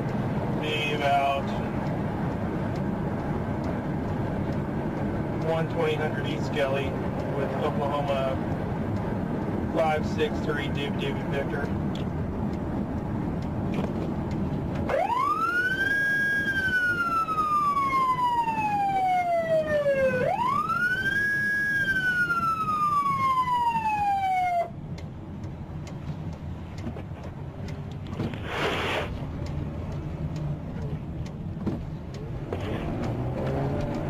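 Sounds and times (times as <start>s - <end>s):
vehicle and road noise: 0.0s - 34.0s
police siren wailing: 14.9s - 24.8s.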